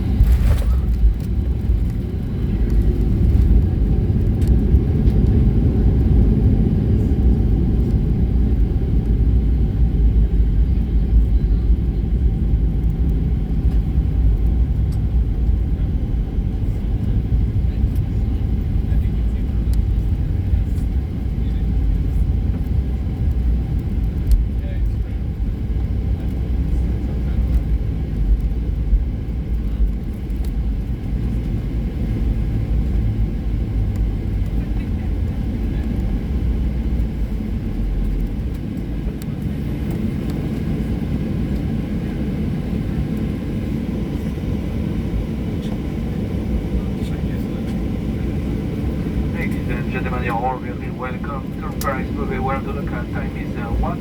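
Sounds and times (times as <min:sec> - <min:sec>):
airplane cabin rumble: 0:00.0 - 0:54.0.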